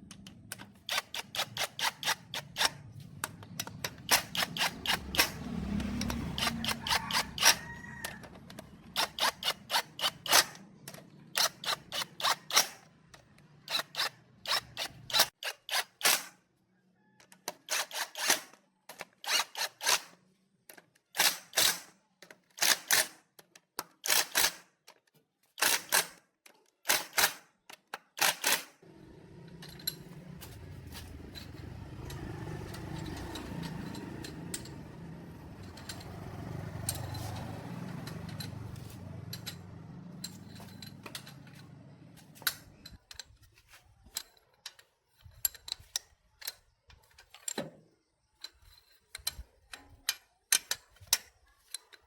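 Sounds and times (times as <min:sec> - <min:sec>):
metal clicks and knocks: 0:31.0 - 0:47.8, 0:48.4 - 0:52.0.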